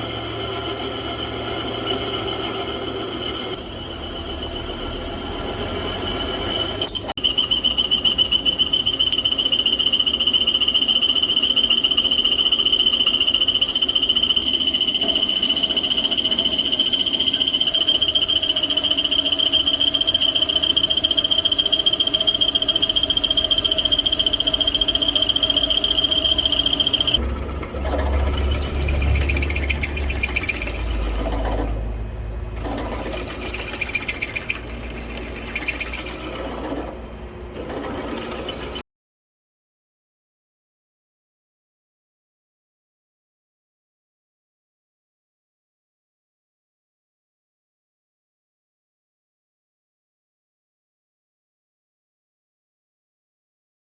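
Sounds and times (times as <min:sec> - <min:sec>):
low motor rumble: 0:00.0 - 0:07.1, 0:22.4 - 0:38.8
drill press squealing: 0:00.0 - 0:38.8.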